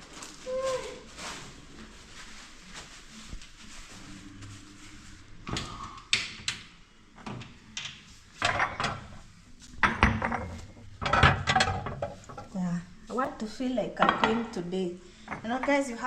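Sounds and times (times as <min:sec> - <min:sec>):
crockery clattering: 0:08.4 - 0:09.2, 0:09.8 - 0:12.6, 0:14.0 - 0:14.6.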